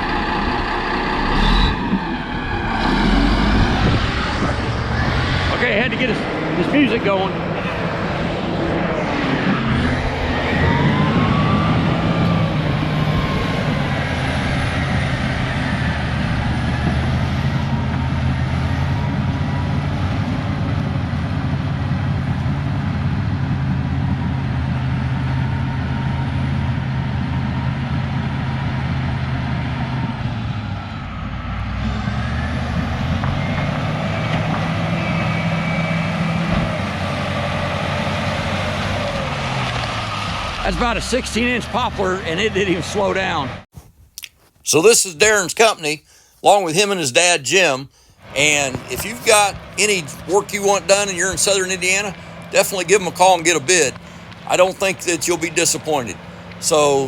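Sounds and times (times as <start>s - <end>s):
bulldozer diesel engine under load: 0.0s - 43.7s, 46.4s - 57.0s
trees being pushed over: 47.6s - 57.0s.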